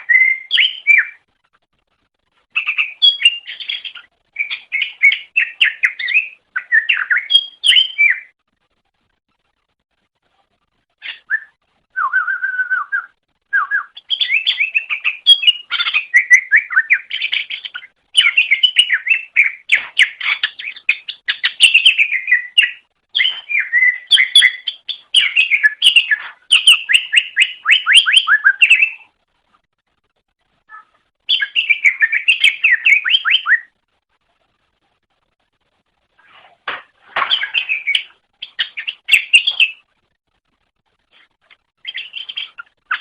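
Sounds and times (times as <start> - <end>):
bird singing chirps and trills: 0.0 - 1.2, 2.5 - 8.4, 11.0 - 29.1, 30.7 - 33.8, 37.2 - 39.9, 41.8 - 43.0.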